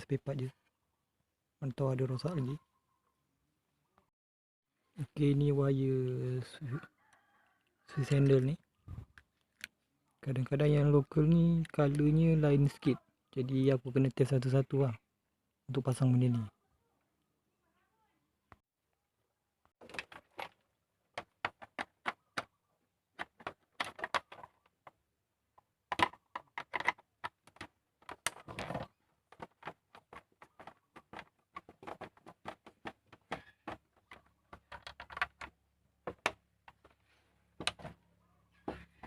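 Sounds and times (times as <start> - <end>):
small parts clicking and rattling: 23.2 - 25.0, 25.9 - 37.0.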